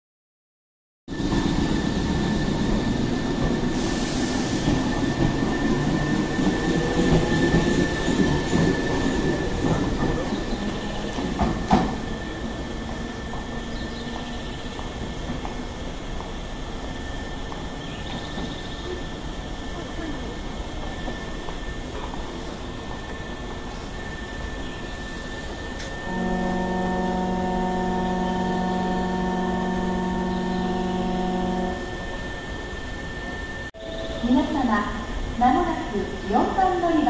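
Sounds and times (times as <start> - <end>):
train wheel and motor noise: 1.1 - 37.0
high whine: 25.1 - 34.5.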